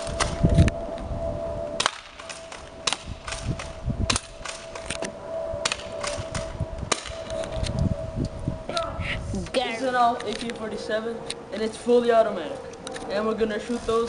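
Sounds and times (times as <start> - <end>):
airsoft gun shots: 1.8 - 4.9, 5.6 - 7.2.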